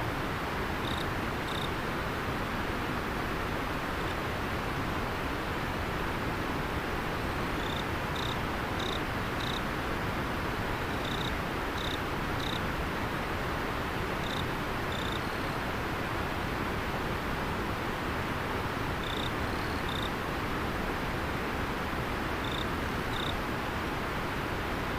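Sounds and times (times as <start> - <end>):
river water flowing: 0.0 - 24.9
insect chirping: 0.8 - 1.7, 7.6 - 9.6, 10.9 - 12.6, 14.2 - 15.3, 19.0 - 20.1, 22.4 - 23.4.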